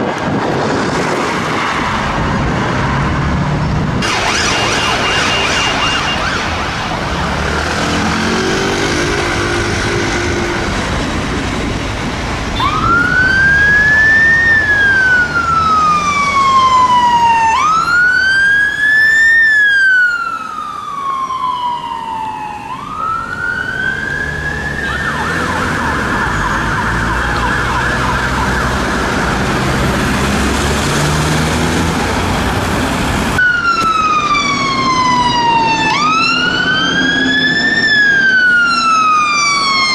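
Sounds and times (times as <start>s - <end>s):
road traffic noise: 0.0s - 39.9s
another vehicle's wailing siren: 4.0s - 7.2s, 7.8s - 11.0s, 12.5s - 29.8s, 33.4s - 39.9s
siren wailing and warbling: 4.0s - 11.2s, 12.5s - 29.8s, 33.4s - 39.9s.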